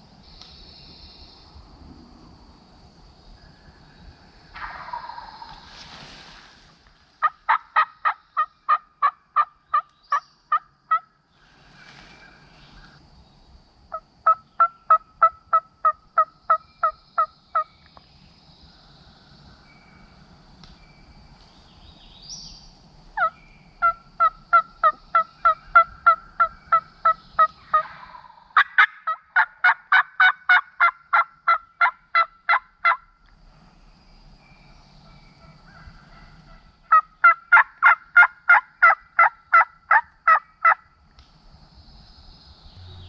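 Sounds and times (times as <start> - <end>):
turkey hen yelping: 7.2 - 9.8, 23.2 - 33.0
turkey call yelping: 7.2 - 11.0, 23.2 - 33.0, 36.1 - 40.8.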